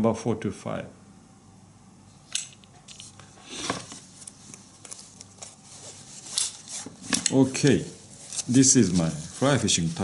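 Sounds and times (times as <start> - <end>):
rustling: 2.9 - 10.0.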